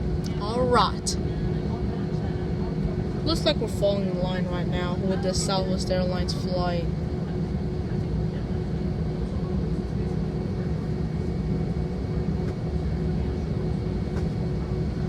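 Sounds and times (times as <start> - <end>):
airliner cabin hum: 0.0 - 15.0.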